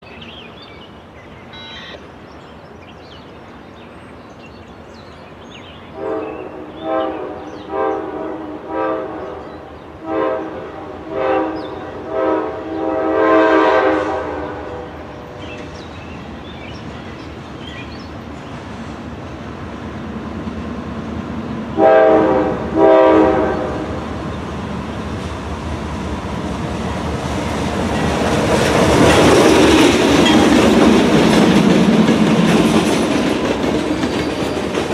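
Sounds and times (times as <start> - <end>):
train rumble: 0.3 - 34.9
locomotive air horn: 1.6 - 2.0, 6.0 - 9.4, 10.0 - 15.2, 21.8 - 24.0.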